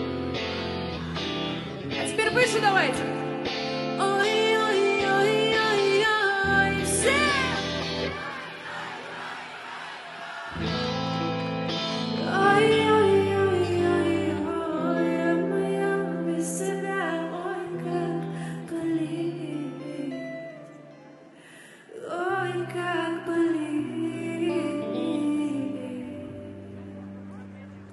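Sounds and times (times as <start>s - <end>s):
live pop song over loudspeakers: 0.0s - 21.1s, 21.9s - 27.9s
woman singing: 1.0s - 3.3s, 3.9s - 8.5s, 12.0s - 21.0s, 21.7s - 27.2s.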